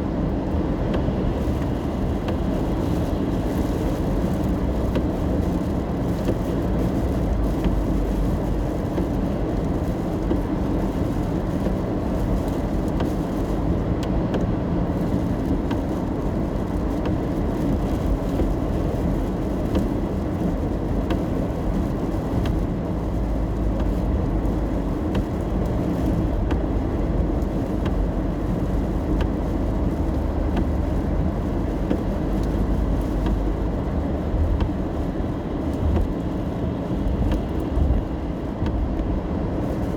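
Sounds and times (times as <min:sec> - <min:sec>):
rain ticking on car: 0:00.0 - 0:39.9
road and engine rumble: 0:00.0 - 0:39.9.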